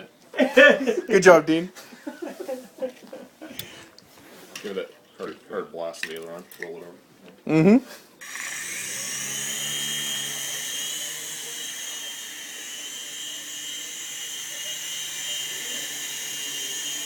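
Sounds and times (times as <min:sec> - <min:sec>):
toy helicopter rotor whine: 0:08.2 - 0:17.0.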